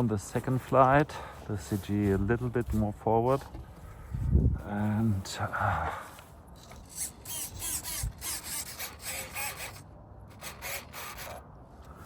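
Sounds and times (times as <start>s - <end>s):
rubbing and scraping handling noises: 0.0s - 5.3s.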